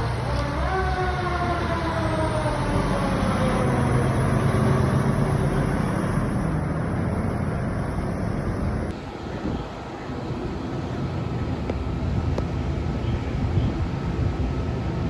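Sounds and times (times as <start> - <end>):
fire truck siren: 0.0 - 7.2
diesel engine rumble: 0.0 - 15.0.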